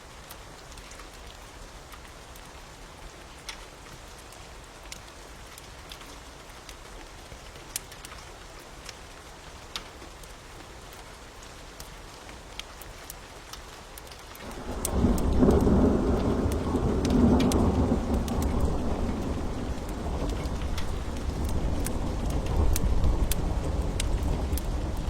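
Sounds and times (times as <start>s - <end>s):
steady rain falling: 0.0s - 25.0s
wood fire crackling and popping: 12.6s - 25.0s.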